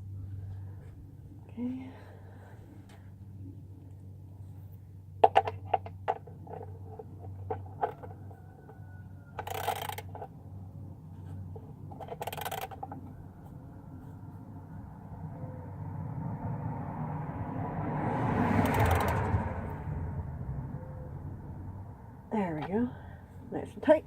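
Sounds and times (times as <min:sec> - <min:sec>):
ratchet clicking: 0:09.4 - 0:10.2, 0:12.0 - 0:12.9, 0:18.6 - 0:19.2.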